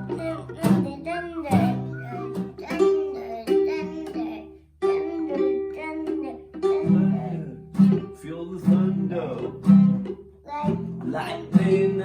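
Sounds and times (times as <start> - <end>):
guitar plucked and strummed: 0.0 - 12.0.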